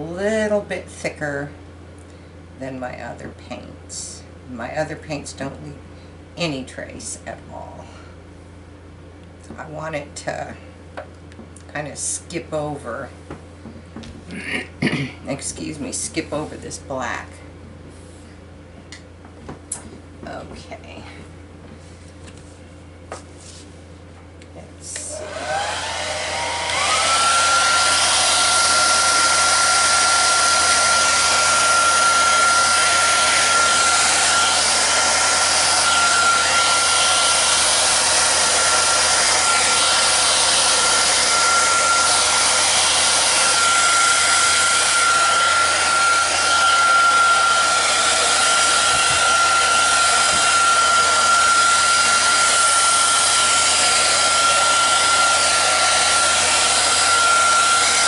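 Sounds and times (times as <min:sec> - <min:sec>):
hair dryer running: 0:24.9 - 0:58.0.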